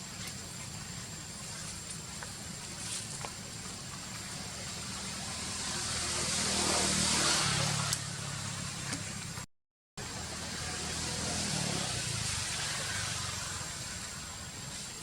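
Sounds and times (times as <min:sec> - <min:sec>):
motor vehicle passing: 0:04.4 - 0:09.4, 0:10.0 - 0:14.7.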